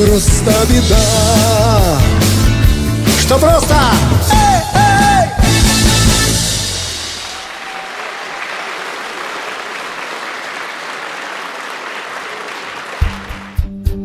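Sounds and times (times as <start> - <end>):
audience applauding: 6.7 - 13.7.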